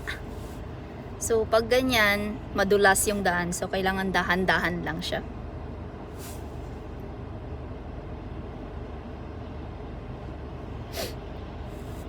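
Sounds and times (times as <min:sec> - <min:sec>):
engine and tyre rumble: 0:00.0 - 0:12.0
faint hiss of wet road: 0:06.0 - 0:07.1.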